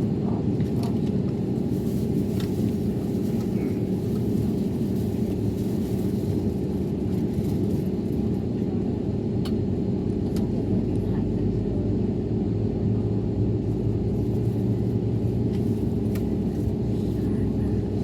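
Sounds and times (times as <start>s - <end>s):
airplane rumble and hum: 0.0s - 18.0s.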